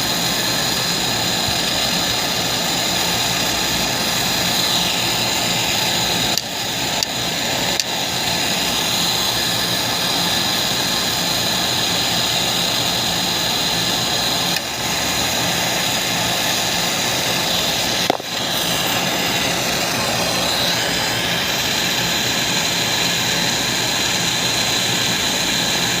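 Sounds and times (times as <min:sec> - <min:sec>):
machine running with high whine: 0:00.0 - 0:26.0.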